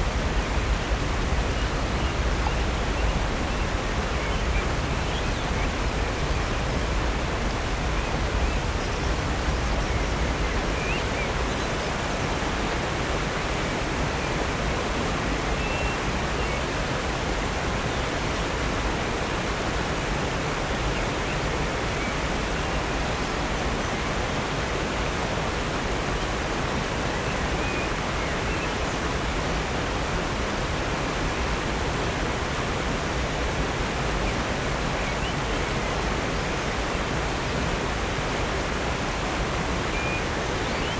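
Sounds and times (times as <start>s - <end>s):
waterfall rushing: 0.0s - 40.9s
faint bird chirps: 39.9s - 40.9s.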